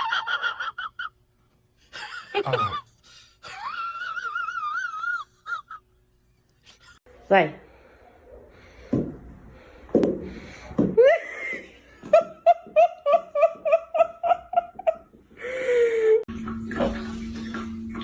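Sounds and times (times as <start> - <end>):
person laughing hard: 2.0 - 5.8.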